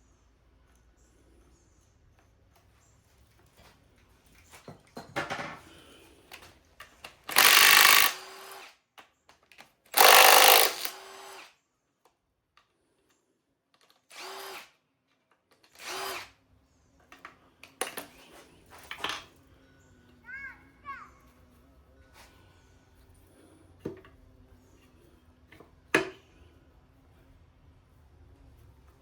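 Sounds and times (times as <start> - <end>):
handheld power tool whirring: 7.0 - 8.8, 9.9 - 11.6, 14.1 - 14.7, 15.6 - 16.3.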